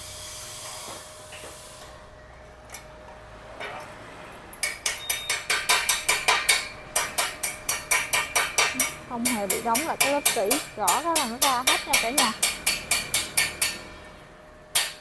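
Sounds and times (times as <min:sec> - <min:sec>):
hammer tapping on metal: 0:04.6 - 0:14.0, 0:14.7 - 0:15.0.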